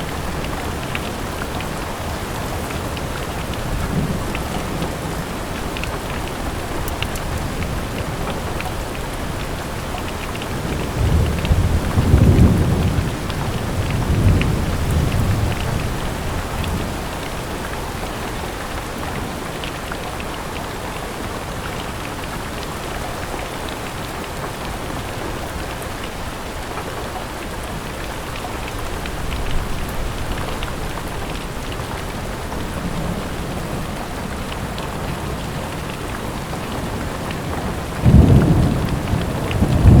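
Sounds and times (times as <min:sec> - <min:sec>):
steady rain: 0:00.0 - 0:40.0
low rumble of thunder: 0:10.5 - 0:17.6, 0:29.2 - 0:40.0.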